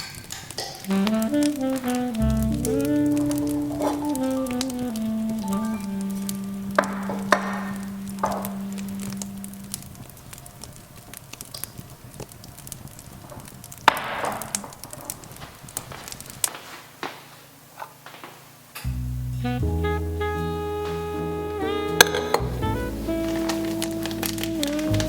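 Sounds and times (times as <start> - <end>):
held music note: 0.9 - 9.8, 19.4 - 25.0.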